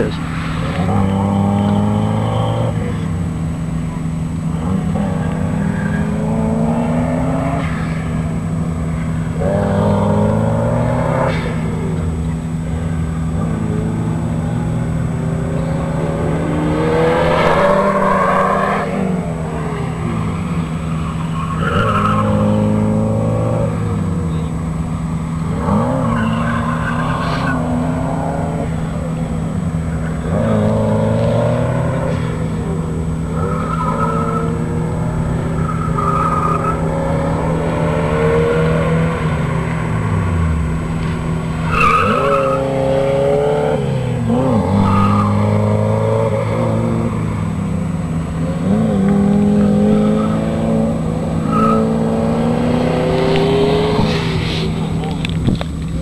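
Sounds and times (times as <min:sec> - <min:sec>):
car engine revving: 0:00.0 - 0:56.0
tire squeal: 0:03.9 - 0:12.5, 0:15.6 - 0:47.9, 0:49.4 - 0:55.3.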